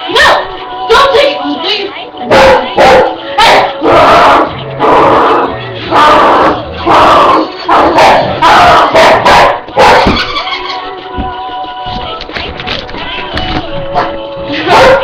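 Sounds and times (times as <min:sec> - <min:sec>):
dog barking loudly: 0:02.3 - 0:05.2, 0:05.9 - 0:10.3, 0:14.6 - 0:15.0.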